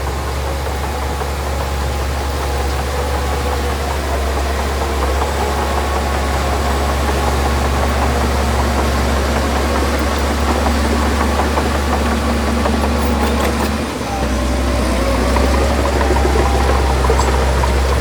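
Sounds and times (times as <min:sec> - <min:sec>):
heavy diesel engine running: 0:00.0 - 0:18.0
light clatter: 0:09.8 - 0:13.9.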